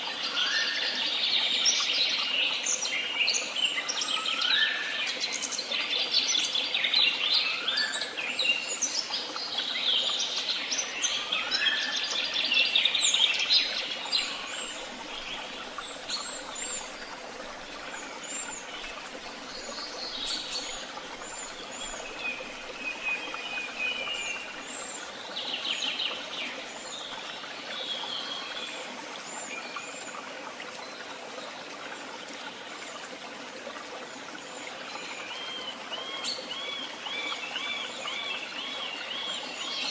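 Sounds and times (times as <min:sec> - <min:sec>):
songbirds singing: 0:00.0 - 0:30.2.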